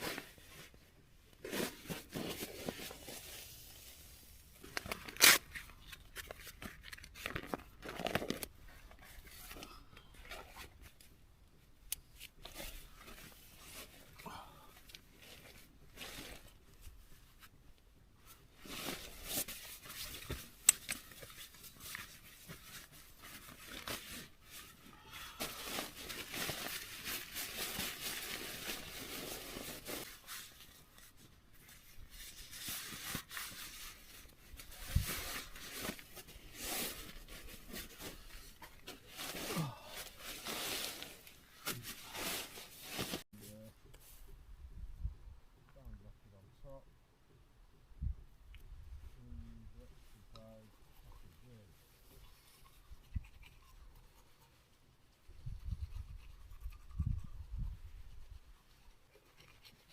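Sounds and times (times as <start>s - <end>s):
rustling and crinkling handling noises: 0.0s - 11.2s, 12.0s - 44.4s.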